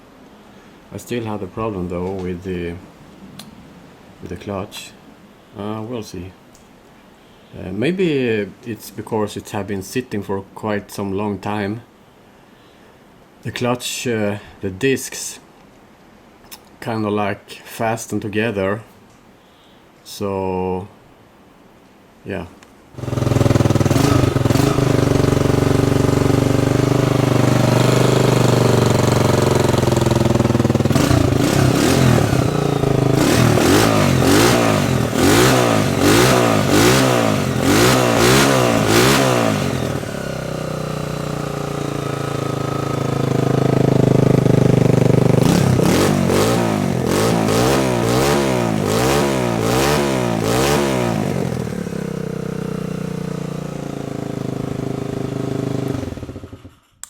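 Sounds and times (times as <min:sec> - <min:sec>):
dirt bike engine revving: 0:23.0 - 0:56.8.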